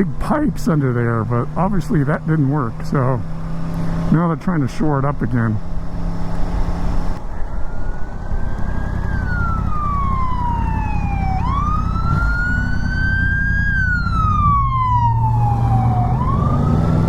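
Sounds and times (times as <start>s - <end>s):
fire engine siren wailing: 7.2s - 17.0s.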